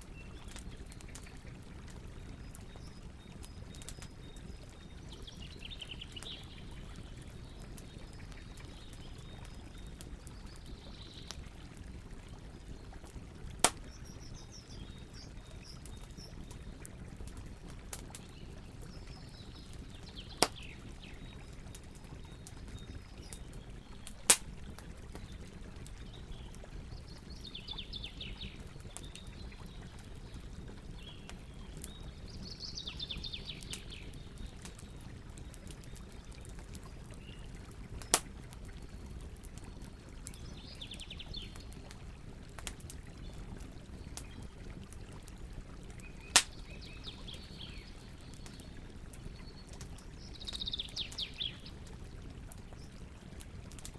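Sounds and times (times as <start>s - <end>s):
campfire crackling: 0.0s - 53.9s
loud sharp fire pops: 46.3s - 46.5s.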